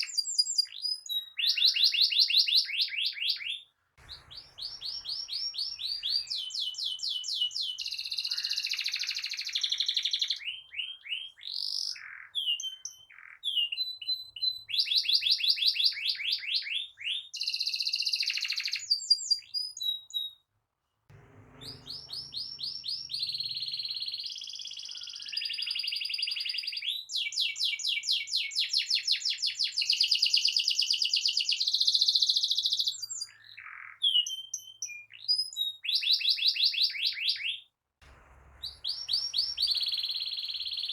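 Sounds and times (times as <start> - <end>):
canary singing trills: 21.1 - 27.0, 38.4 - 40.9.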